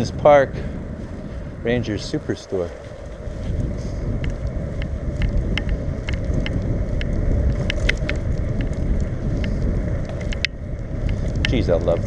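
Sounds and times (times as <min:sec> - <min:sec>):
bicycle ticks and rattles: 0:00.0 - 0:12.0
wind buffeting microphone: 0:00.0 - 0:12.0.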